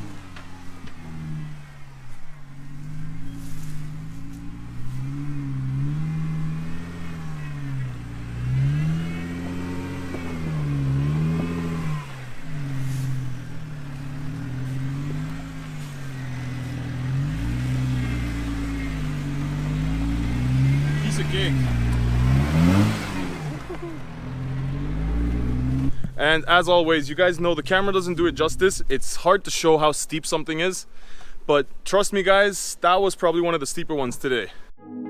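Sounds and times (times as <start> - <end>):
engine revving under load: 0.0 - 26.2.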